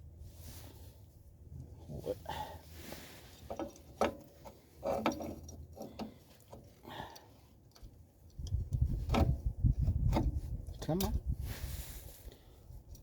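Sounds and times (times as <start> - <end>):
low rumbling handling noise: 7.6 - 11.4.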